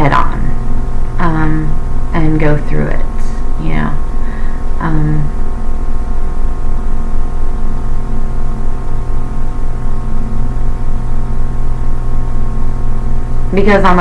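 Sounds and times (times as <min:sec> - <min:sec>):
people talking: 0:00.0 - 0:00.6, 0:01.2 - 0:04.0, 0:04.8 - 0:05.3, 0:13.5 - 0:14.0
drone of held tones: 0:00.0 - 0:14.0
low hum: 0:00.0 - 0:14.0.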